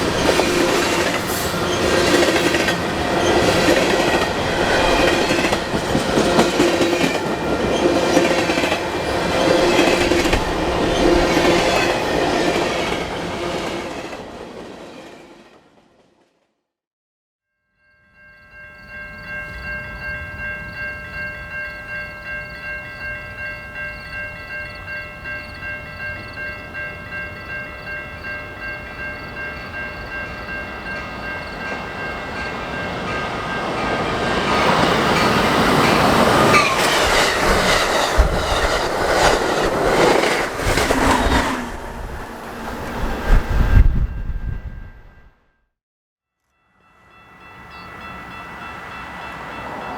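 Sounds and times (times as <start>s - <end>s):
crossing bell ringing: 0.0s - 13.1s, 17.6s - 40.9s, 46.5s - 49.9s
wheels clattering over rail joints: 31.1s - 43.0s.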